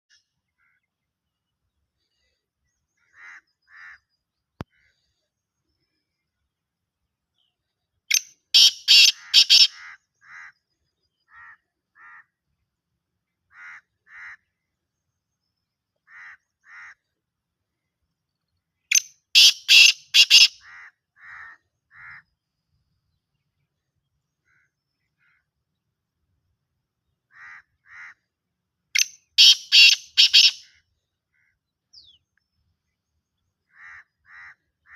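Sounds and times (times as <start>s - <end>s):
bird harsh rasping call: 8.5s - 10.6s, 19.3s - 22.2s, 29.0s - 30.8s.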